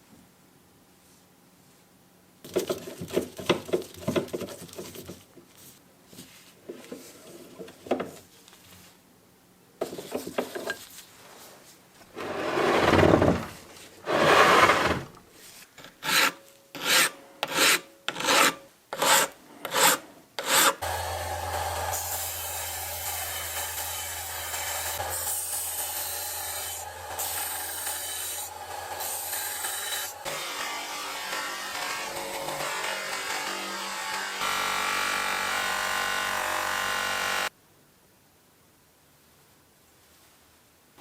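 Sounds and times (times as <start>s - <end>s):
hand filing strokes: 16.0s - 21.0s.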